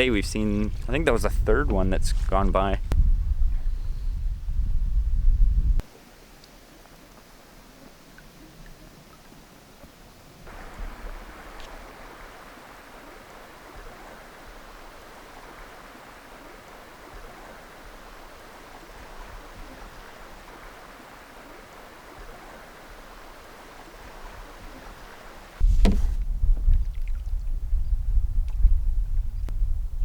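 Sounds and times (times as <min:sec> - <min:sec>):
flowing river water: 0:05.8 - 0:26.2, 0:26.8 - 0:27.4.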